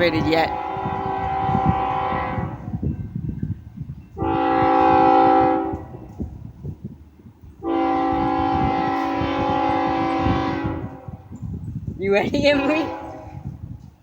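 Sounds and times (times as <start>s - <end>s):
locomotive air horn blasts: 0.0s - 2.9s, 4.2s - 6.1s, 7.6s - 11.3s, 12.6s - 13.6s
low rough rumbling: 0.0s - 13.8s.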